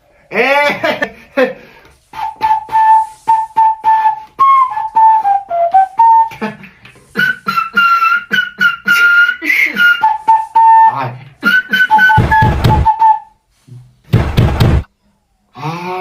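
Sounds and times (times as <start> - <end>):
flute beatboxing melody: 2.1 - 13.4
beatboxed kick and snare: 11.7 - 13.1, 14.1 - 14.9.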